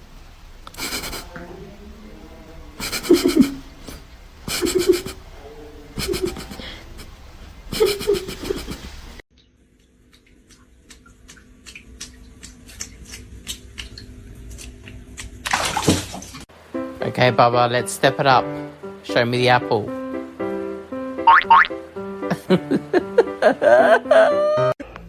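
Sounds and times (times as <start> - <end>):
person laughing: 0.7 - 1.3, 2.8 - 5.2, 6.0 - 9.0, 22.3 - 24.8.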